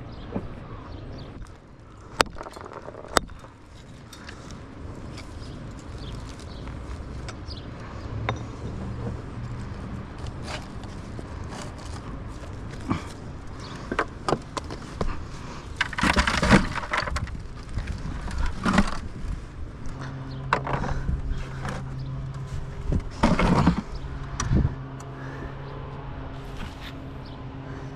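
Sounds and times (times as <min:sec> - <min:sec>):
bricks clattering: 0:02.1 - 0:04.5, 0:15.8 - 0:19.2, 0:23.0 - 0:23.9.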